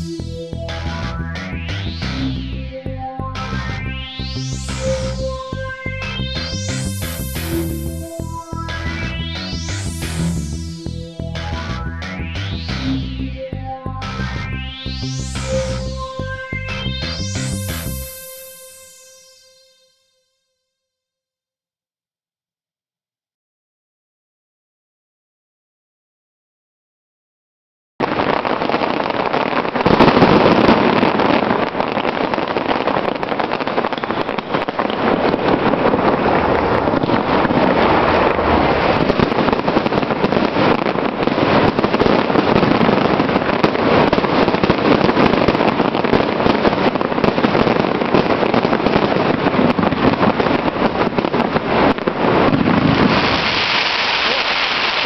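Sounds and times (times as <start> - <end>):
fireworks crackling: 4.2 - 13.0, 15.0 - 19.4, 28.0 - 55.0
steady rushing noise: 35.0 - 41.1.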